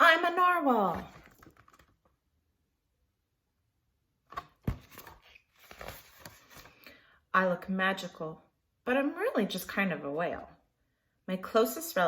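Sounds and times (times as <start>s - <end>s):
paper rustling: 4.3s - 6.8s.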